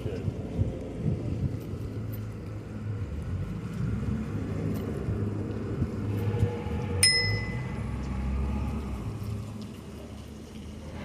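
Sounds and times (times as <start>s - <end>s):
low riding rumble: 0.0s - 11.0s
bicycle bell ding: 7.0s - 7.8s.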